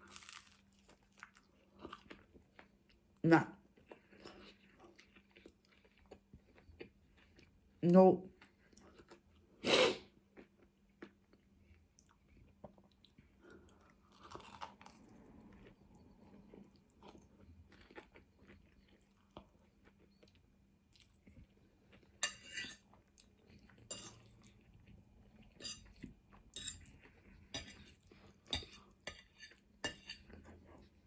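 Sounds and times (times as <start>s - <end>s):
faint chewing: 0.0s - 7.7s, 8.3s - 31.0s
cutlery clinking against a bowl: 22.2s - 22.8s, 23.9s - 24.3s, 25.5s - 30.5s.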